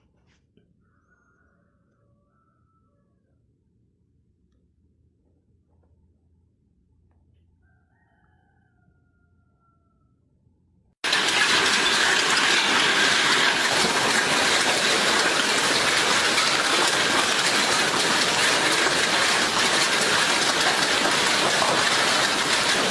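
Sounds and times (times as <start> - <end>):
hail and heavy rain pouring: 11.0 - 22.9.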